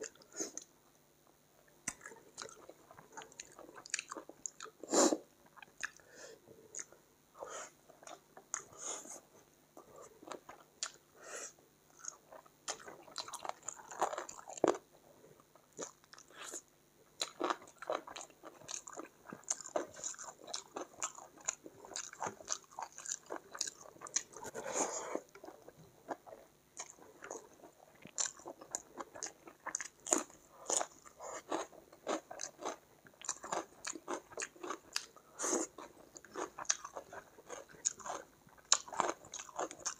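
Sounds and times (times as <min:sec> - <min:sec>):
wet chewing and smacking: 0:17.2 - 0:24.5, 0:25.3 - 0:35.2, 0:35.8 - 0:39.9.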